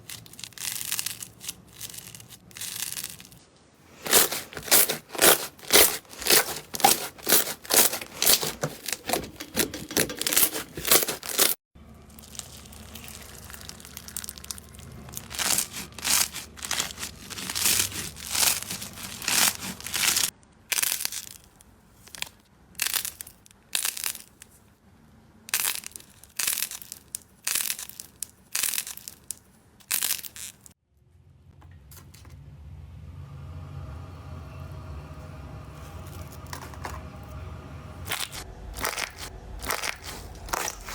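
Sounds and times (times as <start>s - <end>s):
crunchy slime crackling: 0.0s - 24.6s, 25.5s - 30.7s, 38.0s - 40.9s
low steady hum: 31.0s - 40.9s.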